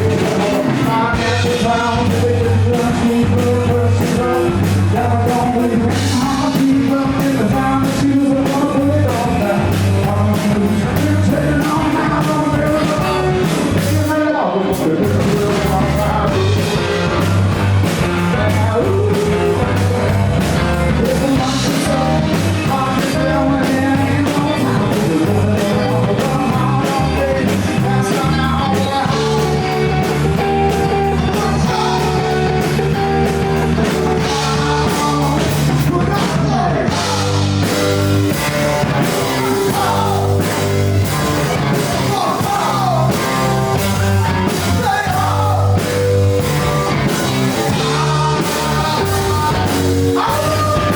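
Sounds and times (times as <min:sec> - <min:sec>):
drums: 0:00.0 - 0:50.9
electric guitars: 0:00.0 - 0:50.9
person singing: 0:00.0 - 0:50.9.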